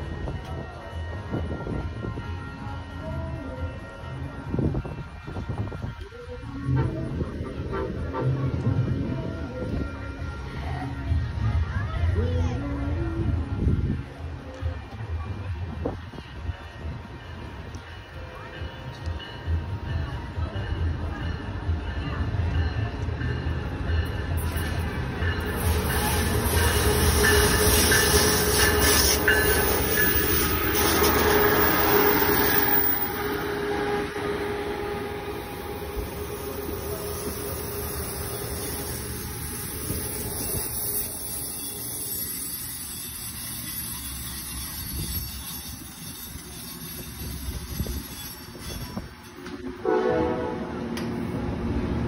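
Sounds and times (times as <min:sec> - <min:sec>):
train rumble and wheel noise: 0:00.0 - 0:52.0
train horn: 0:25.5 - 0:41.0, 0:49.8 - 0:51.0.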